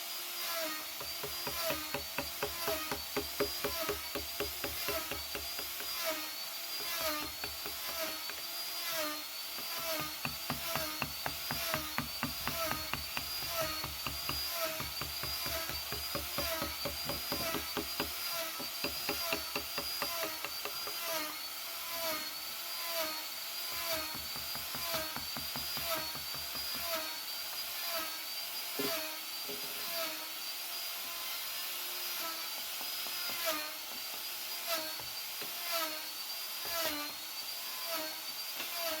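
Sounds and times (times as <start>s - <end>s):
rotary tool carving wood: 0.0s - 39.0s
fast regular tapping: 10.0s - 20.9s.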